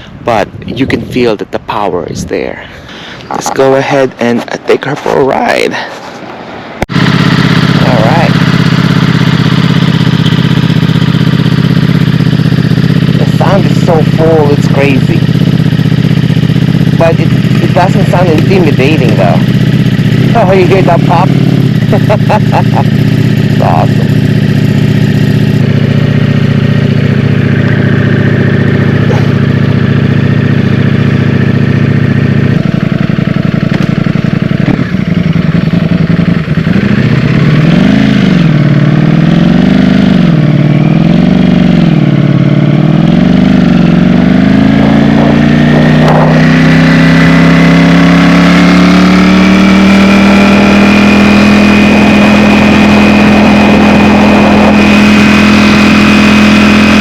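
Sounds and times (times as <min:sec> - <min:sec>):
motorcycle engine revving: 0:06.4 - 0:57.0.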